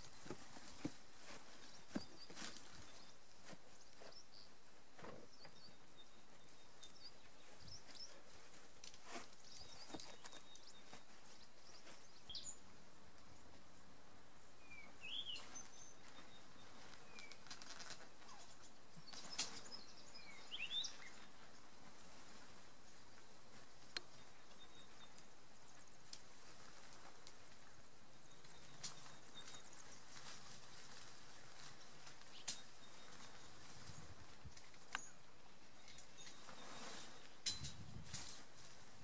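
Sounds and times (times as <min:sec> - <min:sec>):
bird chirps: 0:14.6 - 0:17.6, 0:18.2 - 0:21.3.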